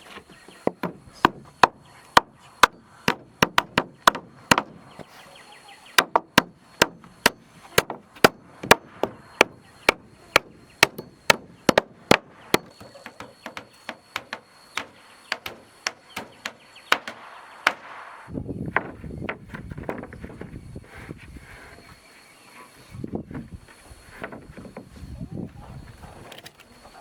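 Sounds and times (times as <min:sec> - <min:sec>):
hammer striking wood: 0:00.6 - 0:05.1, 0:06.0 - 0:20.5.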